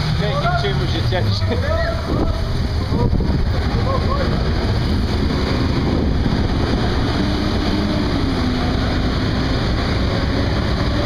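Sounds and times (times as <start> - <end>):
road traffic: 0.0 - 11.0
wind rumble on microphone: 1.9 - 11.0.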